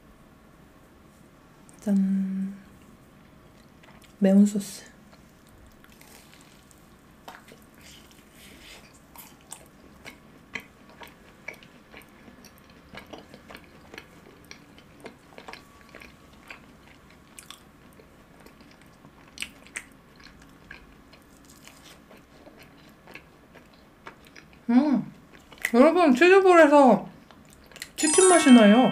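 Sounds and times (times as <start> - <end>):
person crunching fried food: 5.1 - 24.6.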